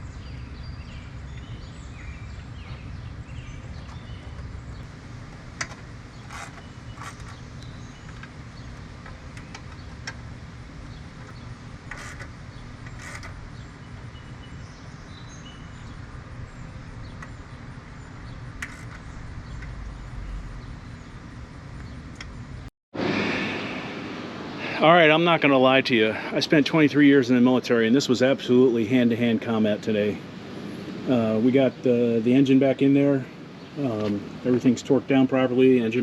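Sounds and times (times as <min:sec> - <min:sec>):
low background rumble: 0:00.0 - 0:26.1.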